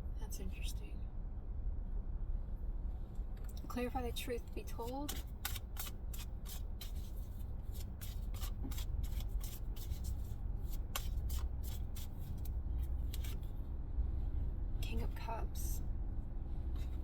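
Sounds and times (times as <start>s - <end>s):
steady low hum: 0.0s - 17.0s
cards being shuffled: 4.8s - 13.5s.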